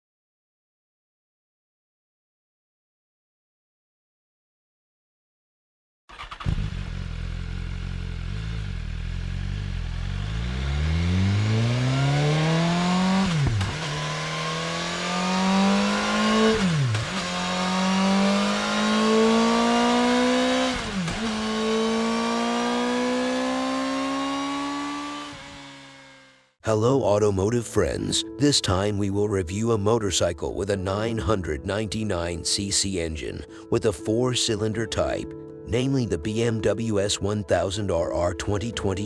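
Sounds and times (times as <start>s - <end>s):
motorcycle engine accelerating: 6.1s - 26.6s.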